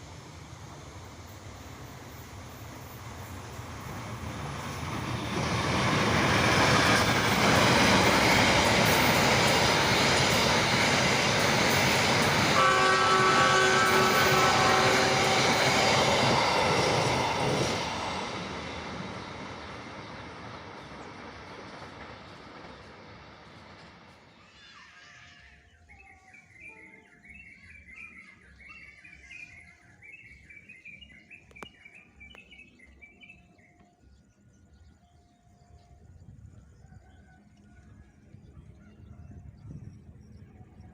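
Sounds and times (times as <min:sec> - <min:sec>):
train rumbling: 0:00.0 - 0:40.9
train horn chord: 0:12.3 - 0:18.2.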